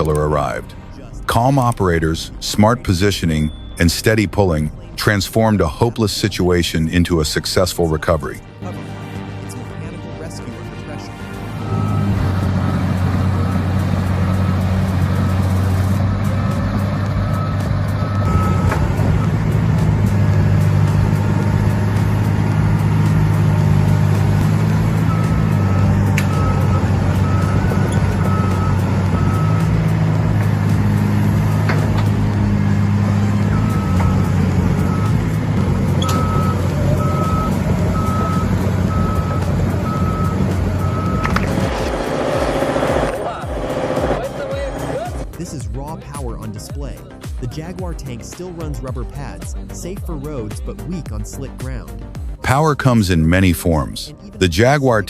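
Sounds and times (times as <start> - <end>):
reversing alarm beeping: 3.5 - 3.9, 11.5 - 16.0, 16.9 - 21.9, 24.4 - 45.2
heavy machine engine running: 11.2 - 45.3.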